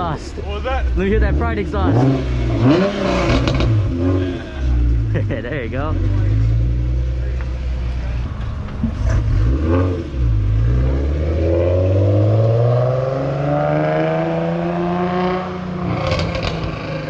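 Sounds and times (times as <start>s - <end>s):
car engine revving and accelerating: 0.0s - 17.0s.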